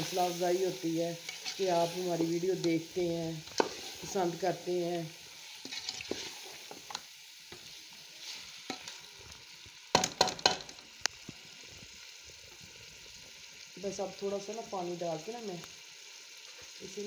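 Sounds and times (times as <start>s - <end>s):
chicken and peas sizzling in a pot: 0.0s - 17.0s
spatula scraping and knocking pot: 3.5s - 4.1s.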